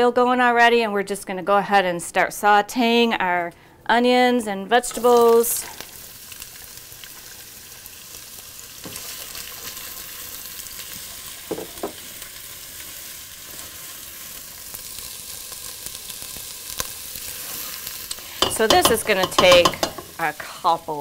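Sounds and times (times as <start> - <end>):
onions sizzling in oil: 4.9 - 21.0
spatula stirring: 17.3 - 20.3.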